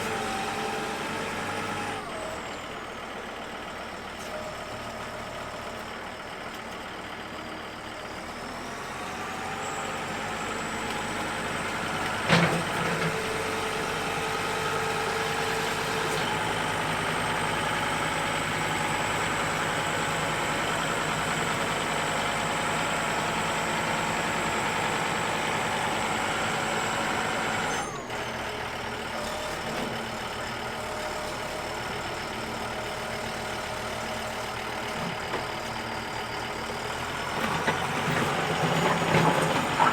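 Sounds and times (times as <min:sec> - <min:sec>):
tractor engine running: 0:00.0 - 0:39.9
loader scraping mud: 0:08.5 - 0:39.9.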